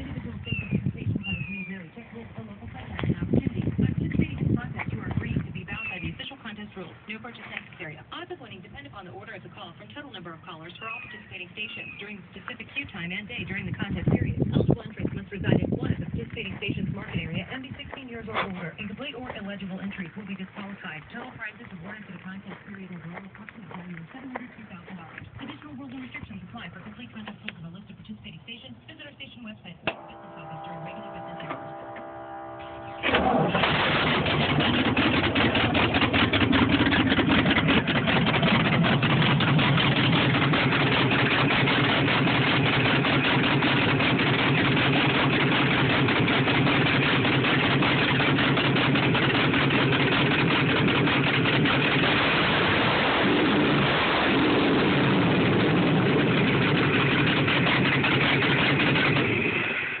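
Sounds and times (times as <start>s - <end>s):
car engine starting and running: 29.8s - 60.0s.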